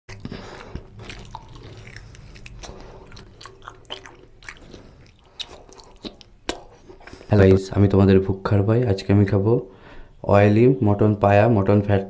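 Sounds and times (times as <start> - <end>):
mouth clicks and smacks: 0.1 - 7.2
wet chewing mouth sounds: 0.1 - 7.3.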